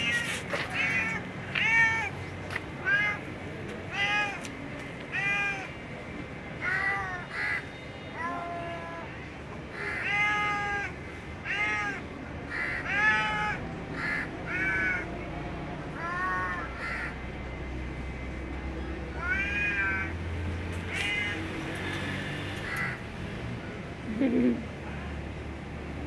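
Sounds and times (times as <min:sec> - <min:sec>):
cat meowing: 0:03.9 - 0:04.4, 0:05.1 - 0:05.7, 0:09.8 - 0:15.0, 0:16.0 - 0:17.1, 0:19.2 - 0:20.2.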